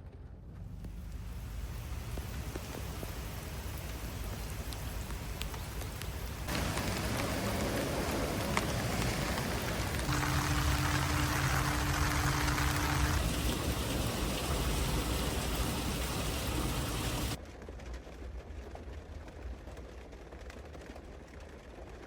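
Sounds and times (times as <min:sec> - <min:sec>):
rain falling: 0:00.4 - 0:17.9
drops ticking: 0:00.8 - 0:17.4.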